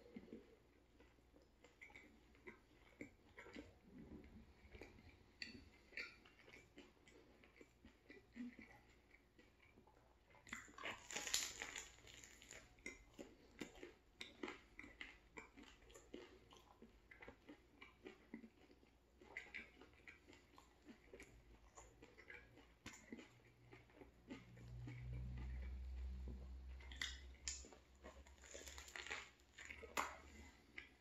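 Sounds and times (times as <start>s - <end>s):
close-up chewing: 0.0s - 31.0s
crunchy bite of sandwich: 10.4s - 31.0s.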